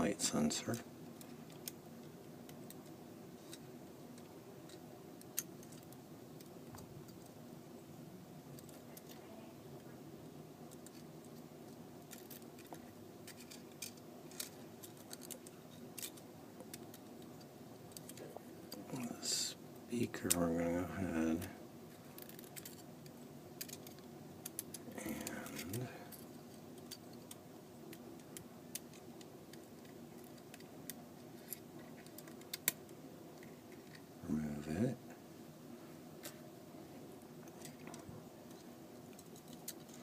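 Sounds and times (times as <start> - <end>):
small tools clicking and tapping: 12.1 - 18.8, 37.4 - 40.0.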